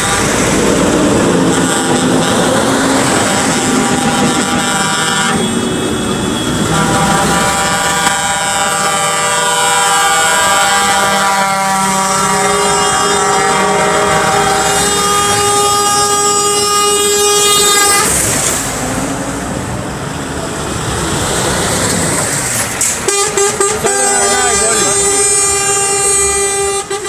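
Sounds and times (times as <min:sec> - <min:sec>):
truck air horns blasting: 0:00.0 - 0:18.6, 0:22.9 - 0:27.0.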